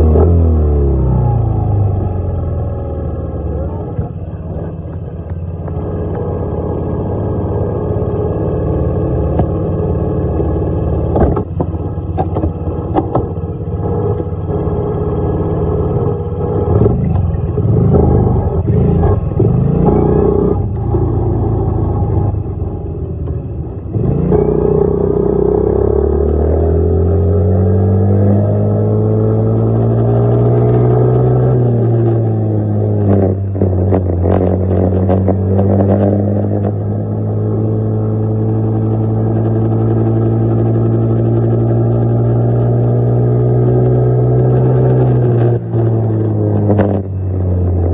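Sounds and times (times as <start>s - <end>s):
dirt bike engine revving: 16.7s - 20.7s.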